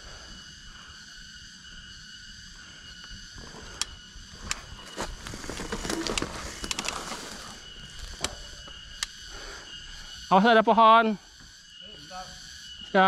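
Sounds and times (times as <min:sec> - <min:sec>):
high-pitched insect drone: 0:00.0 - 0:13.0
mountain bike rattling and clicking: 0:04.5 - 0:08.5.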